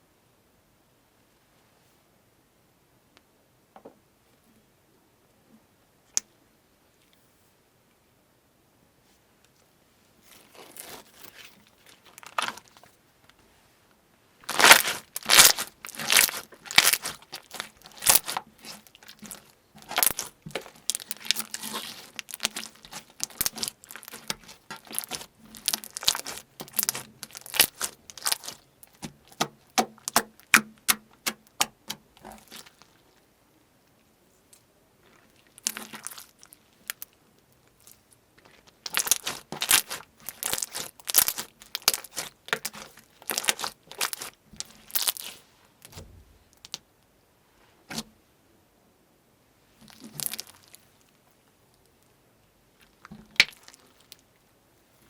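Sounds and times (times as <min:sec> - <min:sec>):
slime popping and crackling: 0:14.4 - 0:33.0, 0:35.4 - 0:37.1, 0:37.8 - 0:45.4, 0:49.9 - 0:50.8, 0:53.0 - 0:54.2.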